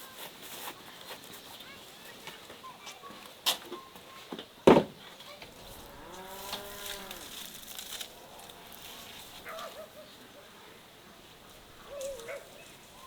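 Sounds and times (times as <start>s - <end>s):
cow mooing: 5.5s - 9.6s.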